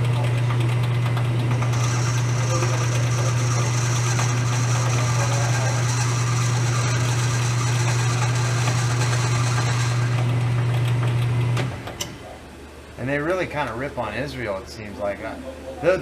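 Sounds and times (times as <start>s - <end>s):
metal lathe running: 1.5s - 10.8s.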